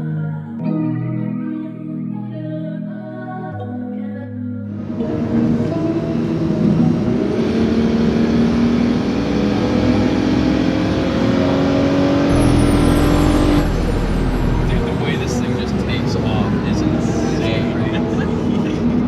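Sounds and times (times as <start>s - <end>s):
deep drone: 4.7s - 19.0s
car engine accelerating: 4.8s - 19.0s.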